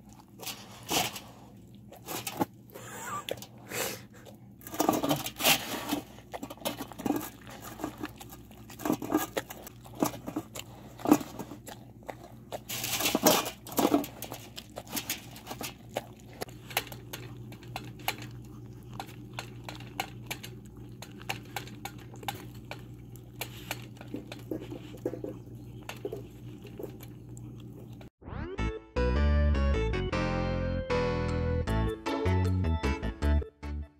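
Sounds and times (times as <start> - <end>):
food clicking on metal bowls: 0.0 - 2.6, 4.6 - 28.1
dogs chewing and licking: 0.0 - 28.1.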